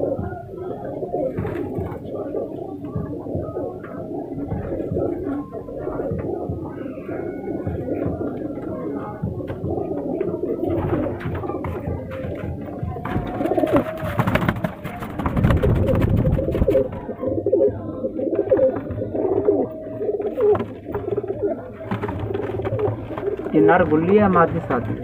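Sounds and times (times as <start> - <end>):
pigeons cooing: 0.0 - 25.0
rustling and clatter: 10.7 - 17.1.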